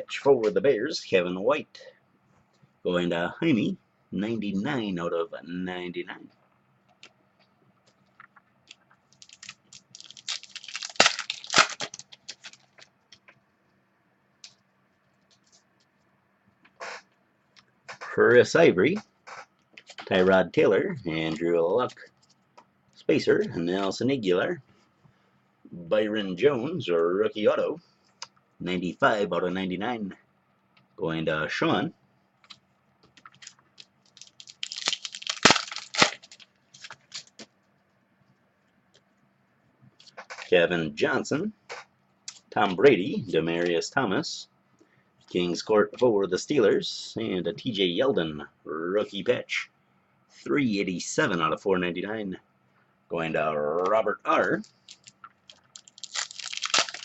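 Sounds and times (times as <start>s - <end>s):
foil wrapper tearing and crinkling: 9.2s - 12.8s, 33.4s - 37.4s, 54.9s - 57.0s.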